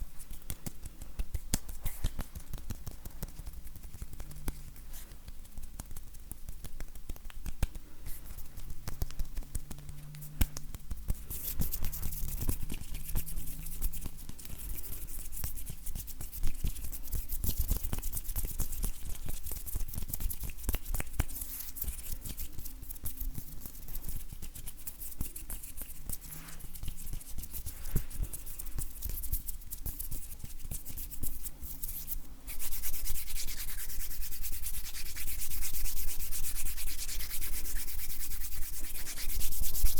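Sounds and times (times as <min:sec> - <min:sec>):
hands rubbing together: 0:00.0 - 0:39.9.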